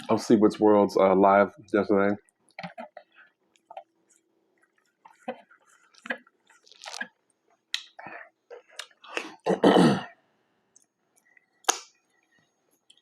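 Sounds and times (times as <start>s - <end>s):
chewing sandwich: 2.3s - 9.1s
wet mouth clicks: 5.9s - 9.3s, 10.8s - 12.0s
throat clearing: 9.2s - 10.2s.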